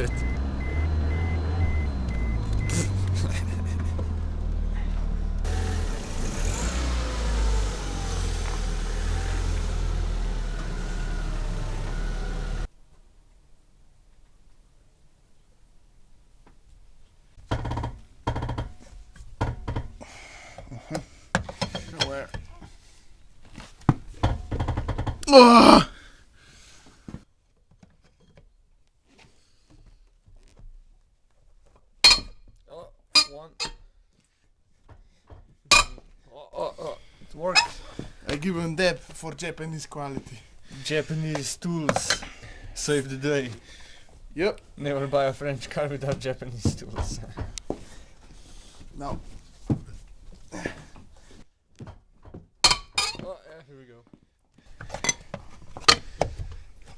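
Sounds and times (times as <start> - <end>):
car engine revving: 0.0 - 12.7
hand tools clicking and knocking: 21.0 - 22.8, 32.0 - 32.5, 33.2 - 33.8, 34.9 - 36.1, 37.5 - 38.4, 41.3 - 42.5, 51.8 - 53.3.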